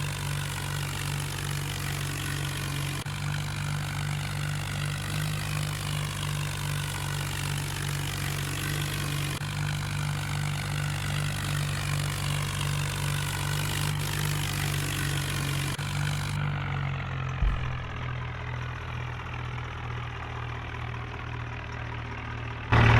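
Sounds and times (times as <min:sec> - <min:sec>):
diesel tractor engine idling: 0:00.0 - 0:22.9
brief thump: 0:17.4 - 0:18.3.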